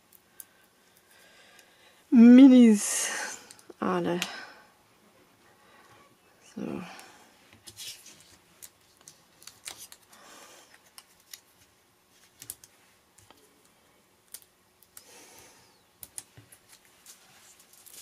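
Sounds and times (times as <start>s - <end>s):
paper rustling: 7.6s - 12.7s, 16.4s - 18.0s.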